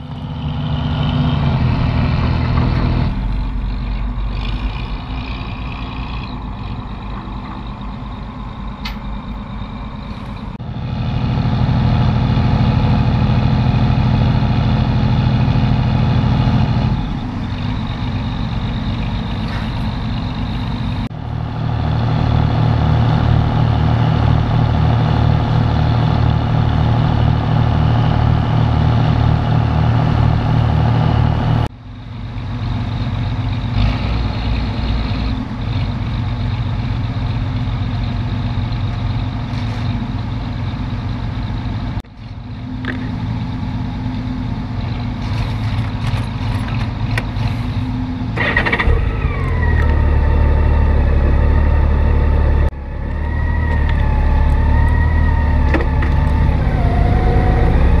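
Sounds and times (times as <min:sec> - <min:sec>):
wavering whine: 0:47.4 - 0:58.0.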